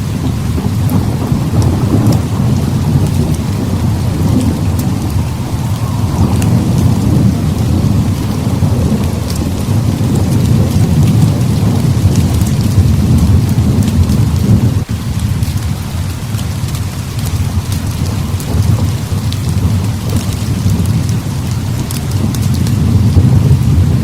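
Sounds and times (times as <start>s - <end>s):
heavy rain pouring: 0.0s - 24.0s
thunder rumbling: 0.0s - 24.0s.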